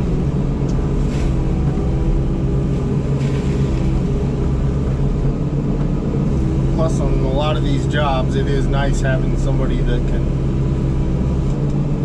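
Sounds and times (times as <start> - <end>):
excavator diesel engine droning: 0.0 - 12.0.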